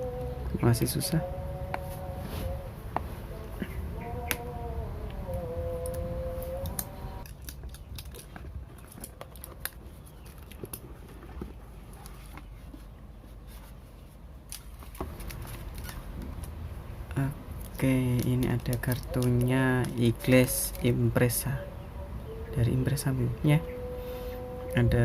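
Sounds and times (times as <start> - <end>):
steady humming tone: 0.0 - 7.4, 16.1 - 25.0.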